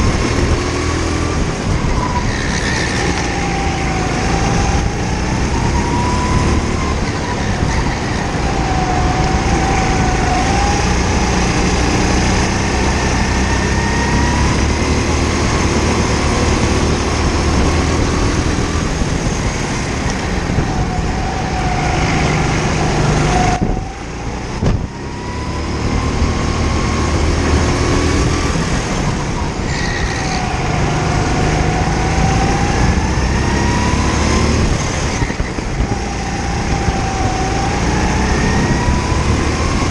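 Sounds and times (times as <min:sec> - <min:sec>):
kart engine running under load: 0:00.0 - 0:39.9.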